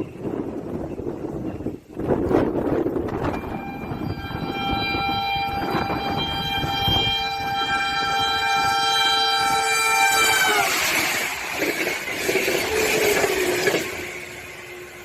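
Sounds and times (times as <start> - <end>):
train rumble: 0.0 - 15.0
locomotive air horn blast: 3.1 - 11.5, 12.2 - 15.0.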